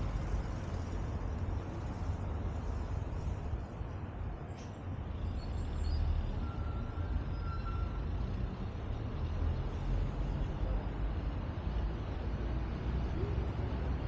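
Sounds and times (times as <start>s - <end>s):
traffic rumble: 0.0s - 14.0s
faint high squeal: 5.3s - 8.2s.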